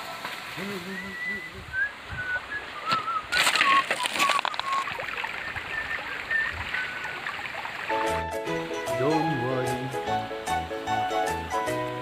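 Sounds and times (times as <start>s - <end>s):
noisy crunch: 2.8s - 4.9s.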